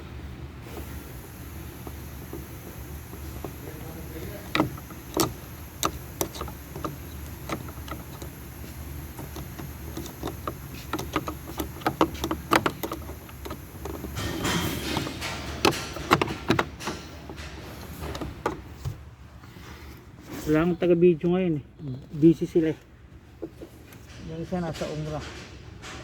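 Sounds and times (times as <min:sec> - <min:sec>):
hand tools clicking on metal: 0:00.8 - 0:18.8.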